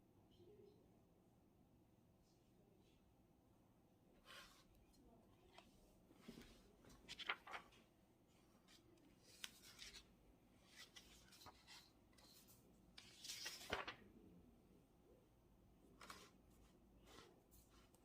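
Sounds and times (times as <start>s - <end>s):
paper rustle: 5.4s - 14.1s, 16.0s - 18.0s.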